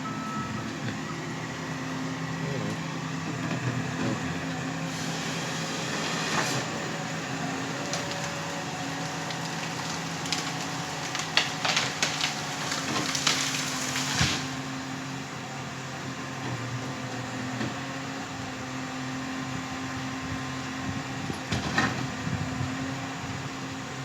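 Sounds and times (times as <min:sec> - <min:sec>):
harvester engine running: 0:00.0 - 0:24.0
sharp cracks and knocks: 0:09.1 - 0:14.5.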